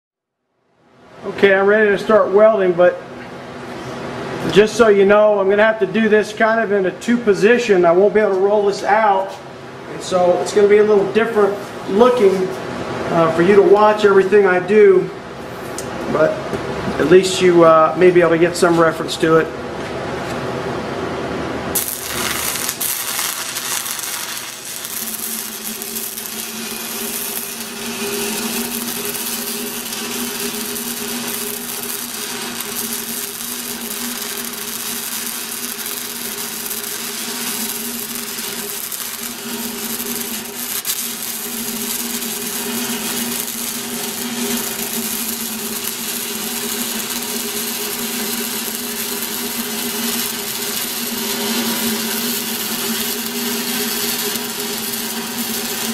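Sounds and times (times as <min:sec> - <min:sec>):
steady hum: 0:00.6 - 0:55.9
welding arc crackling: 0:21.6 - 0:55.9.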